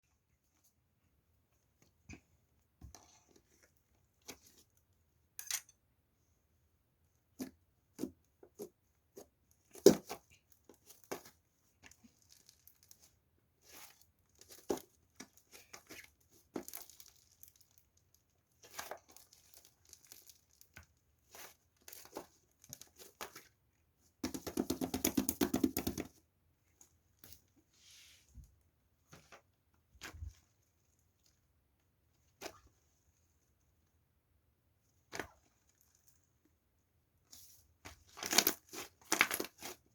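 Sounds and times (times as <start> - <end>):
plastic crinkling and tearing: 16.6 - 17.8, 18.6 - 20.7.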